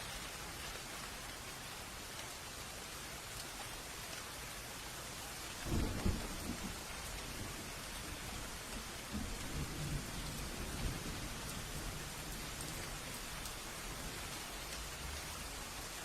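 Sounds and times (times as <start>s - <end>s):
steady rain falling: 0.0s - 16.0s
low roll of thunder: 5.6s - 13.2s.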